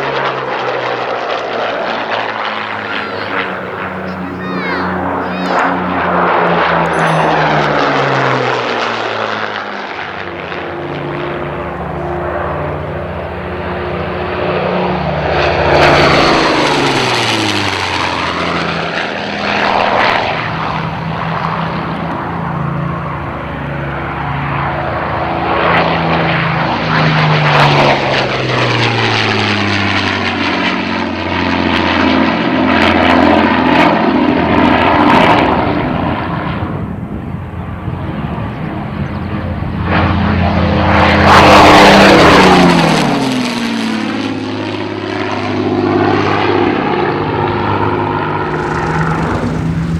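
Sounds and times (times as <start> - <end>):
propeller aircraft engines flying past: 0.0 - 49.9.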